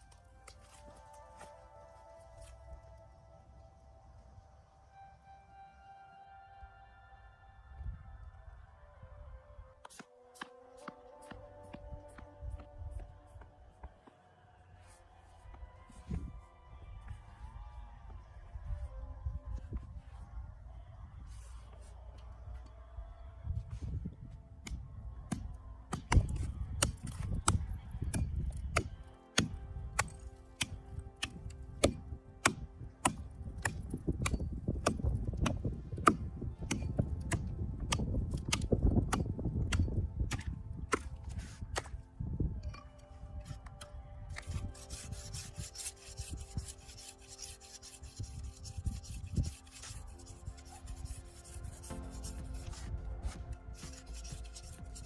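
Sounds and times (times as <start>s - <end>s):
scratchy rubbing of stalks: 44.3s - 55.0s.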